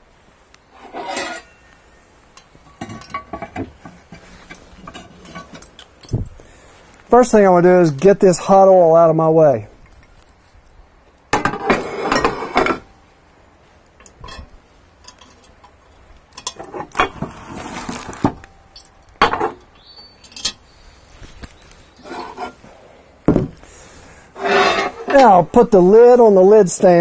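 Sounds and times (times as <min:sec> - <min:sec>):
cast iron pot clanking: 0:00.9 - 0:01.6, 0:02.4 - 0:05.8, 0:11.4 - 0:12.9, 0:14.0 - 0:17.3.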